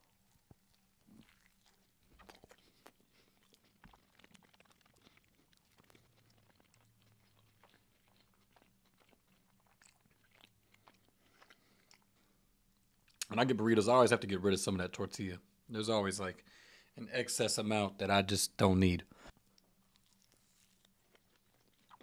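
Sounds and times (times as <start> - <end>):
faint biting and chewing: 0.0 - 13.4, 19.2 - 22.0.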